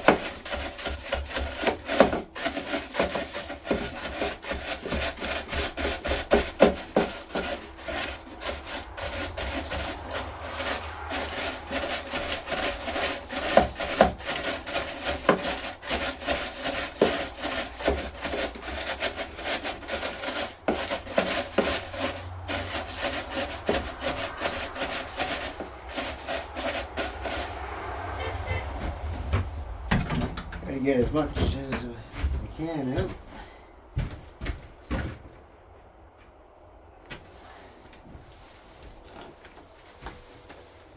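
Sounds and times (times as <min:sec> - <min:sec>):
scraping and rubbing debris: 0:00.0 - 0:33.2.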